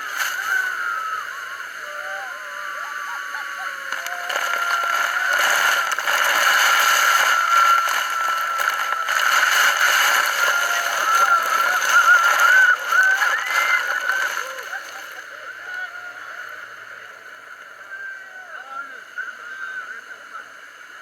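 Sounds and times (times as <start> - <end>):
waterfall rushing: 3.6 - 16.1.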